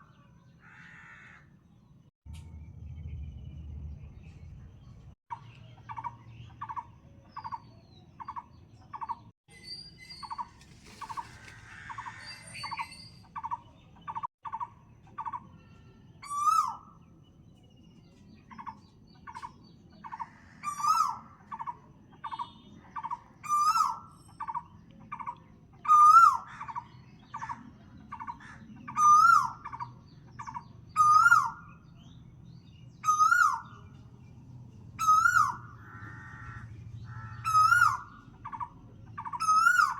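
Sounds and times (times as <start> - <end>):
louder rising and falling bird call: 35.0 - 38.7.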